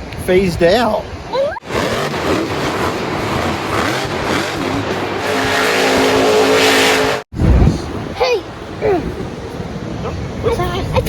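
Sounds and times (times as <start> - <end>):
tyres skidding: 0.5 - 7.3
race car engine: 1.6 - 7.3.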